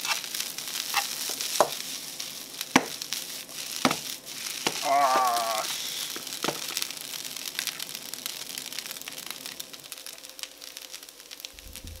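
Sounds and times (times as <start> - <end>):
chopsticks stirring: 0.0 - 6.8
rice sizzling in a frying pan: 0.0 - 12.0.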